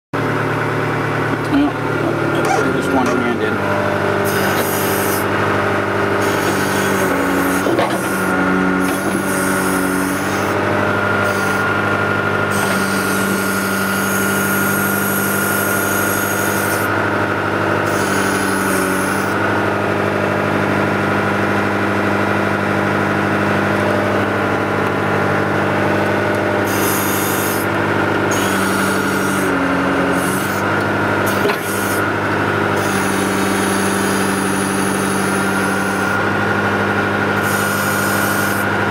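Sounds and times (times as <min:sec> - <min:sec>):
diesel engine running: 0:00.0 - 0:38.9
hydraulic whine and hiss: 0:04.2 - 0:05.3, 0:06.2 - 0:10.6, 0:11.2 - 0:11.7, 0:12.5 - 0:16.9, 0:17.8 - 0:19.4, 0:26.6 - 0:32.1, 0:32.8 - 0:36.2, 0:37.4 - 0:38.8.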